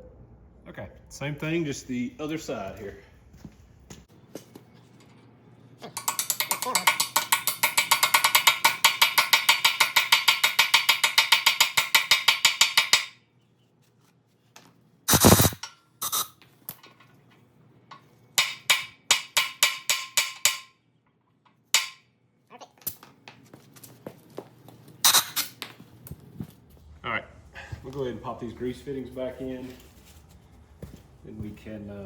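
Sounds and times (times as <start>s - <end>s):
hammer striking metal: 6.0s - 13.2s, 18.4s - 20.8s, 21.7s - 22.1s.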